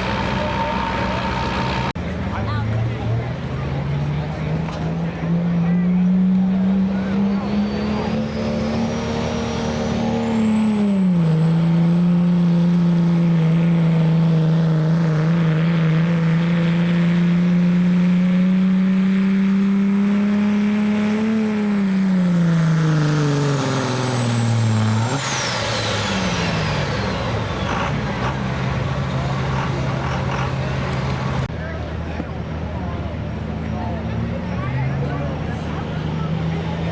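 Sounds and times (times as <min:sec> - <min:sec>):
diesel truck engine at full throttle: 0:00.0 - 0:36.9
high turbo whistle: 0:07.0 - 0:10.4.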